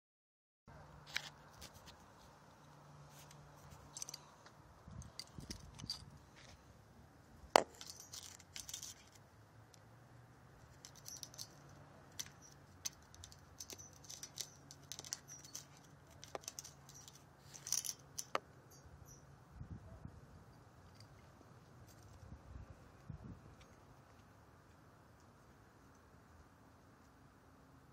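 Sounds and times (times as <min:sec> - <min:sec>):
light clicks and rattles: 0:01.1 - 0:06.6, 0:07.6 - 0:09.2, 0:10.6 - 0:18.8.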